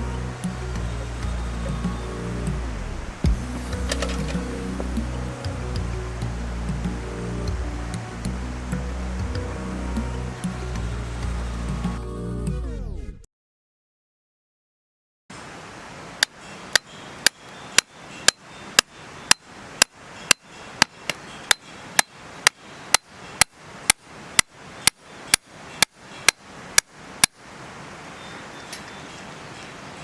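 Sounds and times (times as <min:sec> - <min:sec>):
steady hiss: 0:00.0 - 0:12.3.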